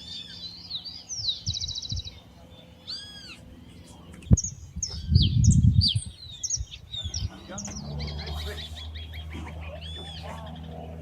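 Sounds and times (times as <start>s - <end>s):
birds chirping: 0.0s - 11.0s
loud low rumble: 3.5s - 11.0s.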